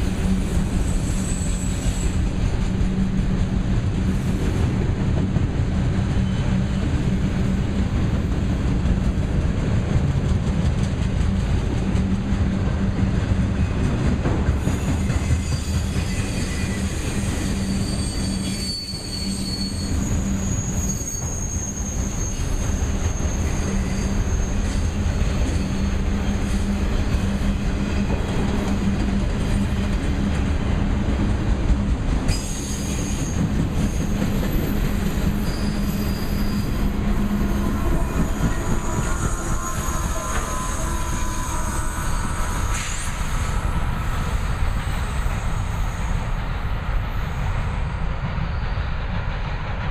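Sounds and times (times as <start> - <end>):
freight train wheels rumbling: 0.0 - 49.9
high wheel squeal: 0.2 - 2.2, 14.6 - 27.2, 32.3 - 46.3.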